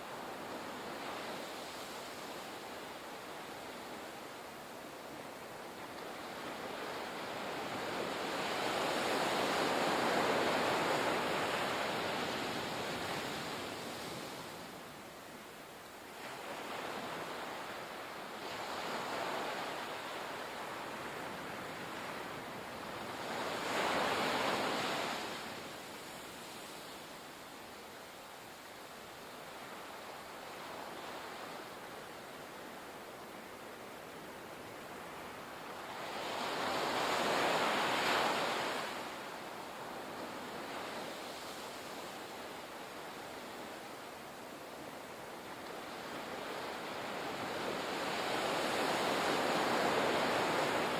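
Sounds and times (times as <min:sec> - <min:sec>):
ocean wave breaking on shore: 0:35.1 - 0:41.9.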